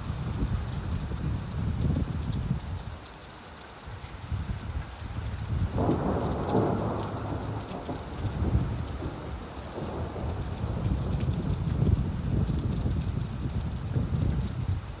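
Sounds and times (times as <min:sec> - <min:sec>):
steady rainfall: 0:00.0 - 0:15.0
rolling thunder: 0:05.5 - 0:14.7.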